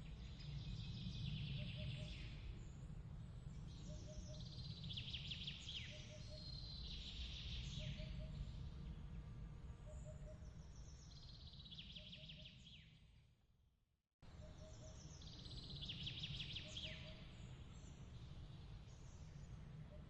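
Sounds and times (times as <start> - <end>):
faint low rumble: 0.0 - 11.8.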